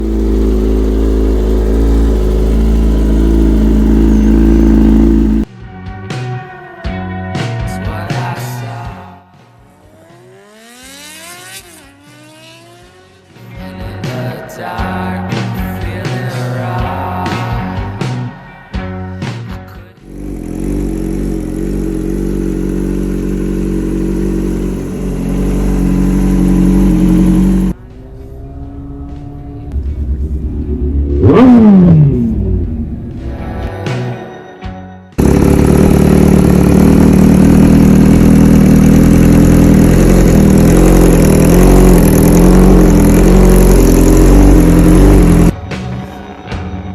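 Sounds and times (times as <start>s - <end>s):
motorcycle engine running: 0.0s - 5.5s, 9.8s - 13.2s, 20.0s - 33.6s, 35.2s - 45.6s
music with drums: 5.9s - 9.6s, 13.6s - 20.1s, 45.5s - 46.9s.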